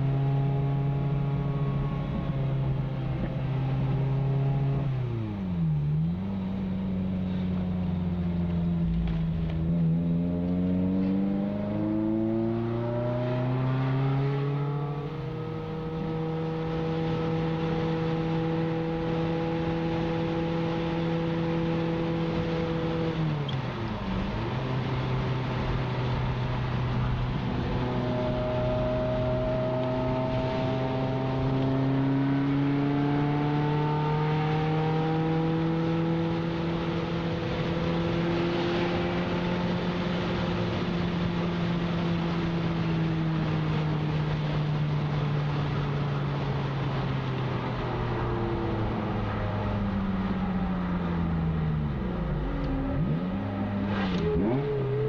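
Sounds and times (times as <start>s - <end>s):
car engine from inside cabin: 0.0s - 55.0s.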